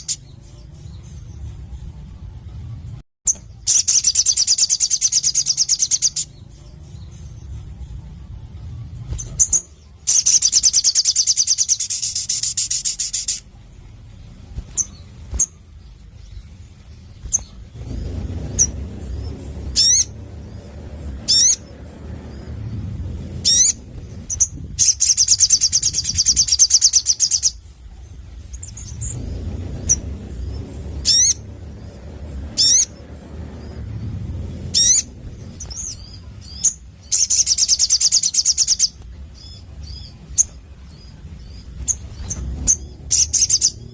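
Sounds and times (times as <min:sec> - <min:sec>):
low rumble: 0:00.0 - 0:43.9
sharp whistled bird notes: 0:09.1 - 0:13.6
bird high trill: 0:14.5 - 0:43.9.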